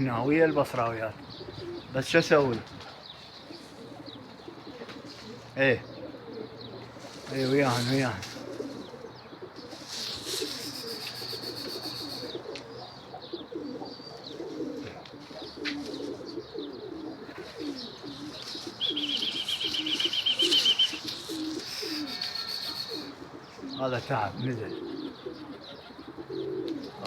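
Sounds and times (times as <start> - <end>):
pigeons cooing: 0.0 - 27.0
fast high bird trill: 9.6 - 12.6, 17.6 - 23.8
high thin bird chirps: 9.6 - 12.9, 17.6 - 23.8.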